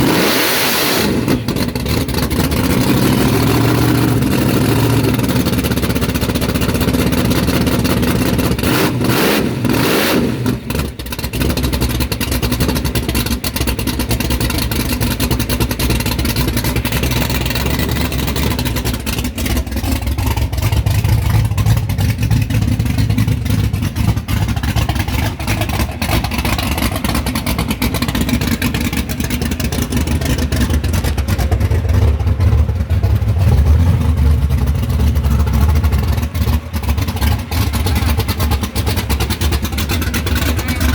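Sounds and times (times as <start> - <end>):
loud car engine revving: 0.0 - 40.9.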